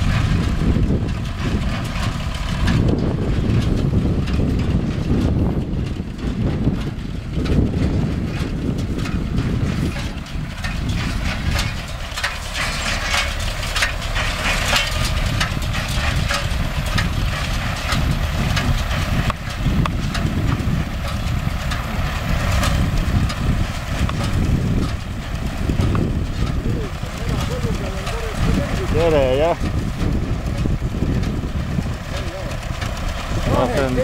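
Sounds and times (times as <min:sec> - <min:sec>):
hay baler clattering: 0:00.0 - 0:34.0
tractor diesel engine running: 0:00.0 - 0:34.0.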